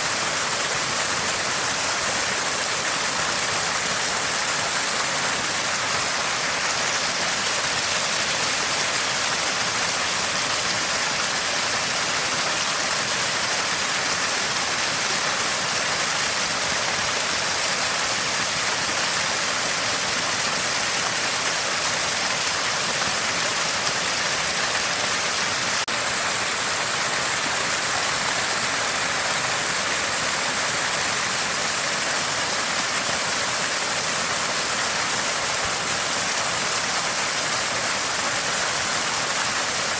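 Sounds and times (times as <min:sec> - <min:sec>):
spring water gushing and gurgling: 0:00.0 - 0:39.9.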